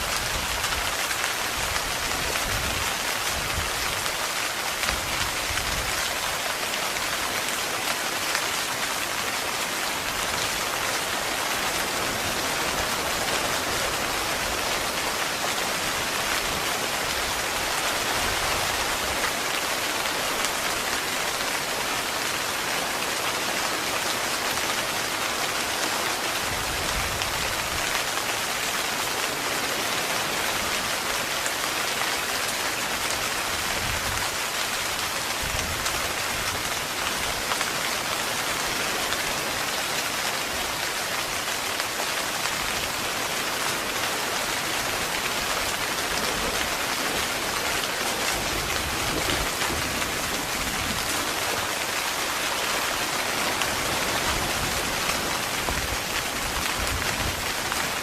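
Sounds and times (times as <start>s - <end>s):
heavy rain on a tent: 0.0s - 58.0s.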